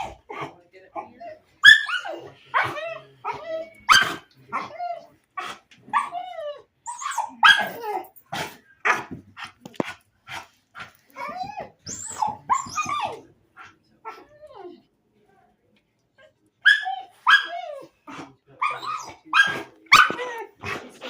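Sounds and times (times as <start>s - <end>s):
dog barking and yelping: 1.6s - 5.0s, 5.9s - 8.1s, 16.6s - 17.9s, 18.6s - 20.8s.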